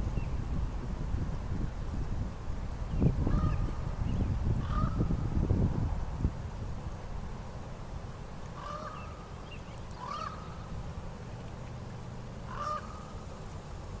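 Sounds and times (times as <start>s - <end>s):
short bird calls: 8.6s - 10.6s, 12.5s - 13.2s.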